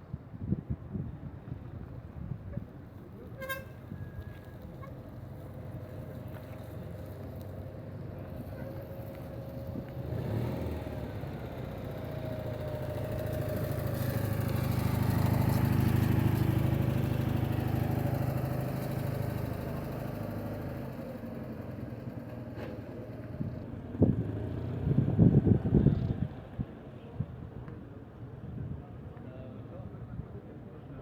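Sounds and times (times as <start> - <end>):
vehicle engine passing: 6.1 - 26.6.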